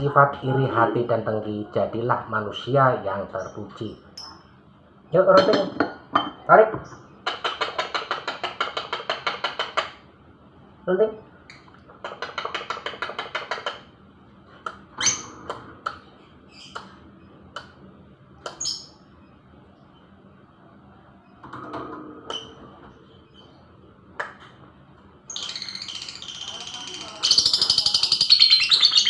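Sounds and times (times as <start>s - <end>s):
lovebird chirping and chattering: 15.0s - 15.5s, 16.1s - 17.3s, 18.4s - 19.0s, 25.3s - 29.0s
bird trilling: 25.2s - 29.0s.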